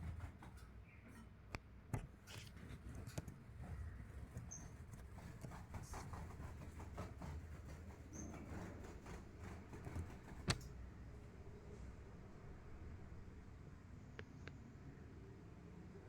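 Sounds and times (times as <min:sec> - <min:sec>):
light taps and scratches: 0:00.0 - 0:10.8.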